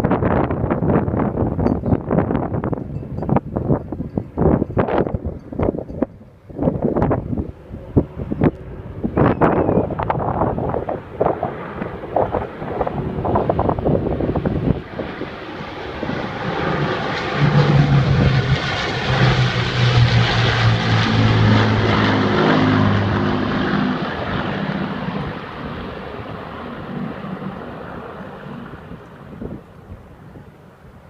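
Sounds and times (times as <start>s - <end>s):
propeller aircraft drone: 0.0s - 31.0s.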